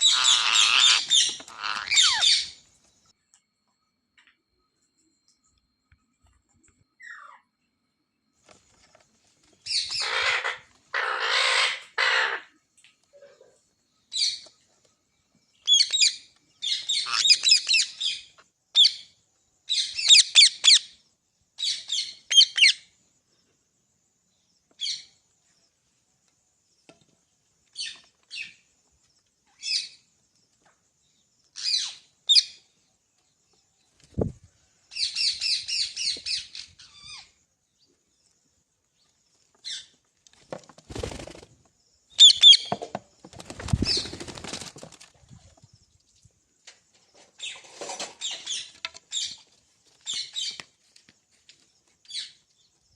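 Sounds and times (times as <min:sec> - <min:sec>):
parrot screeching and squawking: 0:00.0 - 0:02.6, 0:09.7 - 0:12.5, 0:16.8 - 0:17.8.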